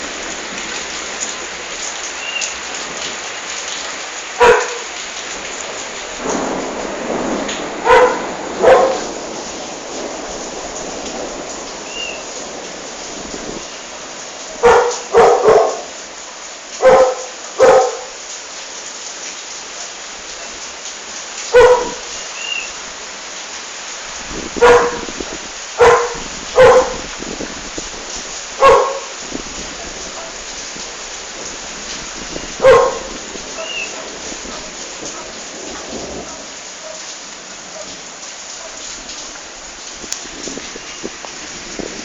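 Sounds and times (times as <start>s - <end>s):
steady hiss of rain: 0.0s - 42.0s
dog barking: 4.4s - 4.9s, 7.8s - 9.2s, 14.6s - 15.9s, 16.8s - 18.2s, 21.5s - 22.1s, 24.6s - 25.2s, 25.8s - 27.1s, 28.6s - 29.2s, 29.8s - 30.6s, 32.6s - 35.4s, 36.1s - 39.0s.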